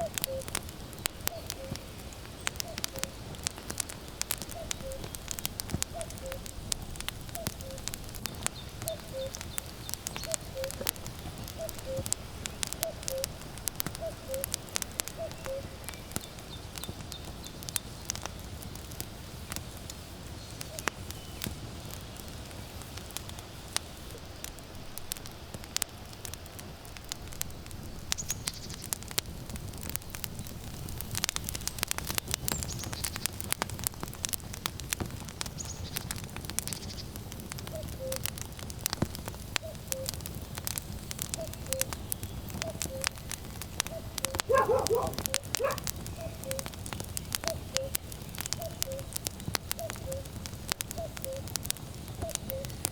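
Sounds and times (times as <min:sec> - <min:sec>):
cuckoo calling: 0:00.0 - 0:00.6, 0:01.3 - 0:01.9, 0:04.5 - 0:05.1, 0:05.9 - 0:06.4, 0:08.8 - 0:09.5, 0:10.1 - 0:12.2, 0:12.8 - 0:13.4, 0:14.0 - 0:14.5, 0:15.2 - 0:15.9, 0:37.7 - 0:38.3, 0:39.6 - 0:40.2, 0:41.4 - 0:42.0, 0:42.6 - 0:43.2, 0:43.9 - 0:46.8, 0:47.4 - 0:48.0, 0:48.6 - 0:49.2, 0:49.8 - 0:50.3, 0:51.0 - 0:51.5, 0:52.2 - 0:52.8
wood fire crackling and popping: 0:00.0 - 0:52.9.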